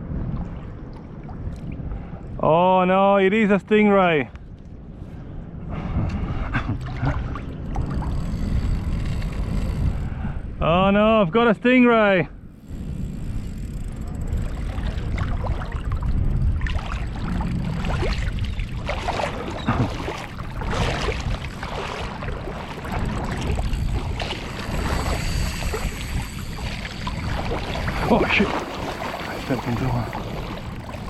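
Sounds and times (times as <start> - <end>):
wind on microphone: 0.0 - 2.4, 4.3 - 11.3, 12.3 - 31.0
feet splashing through shallow water: 14.7 - 31.0.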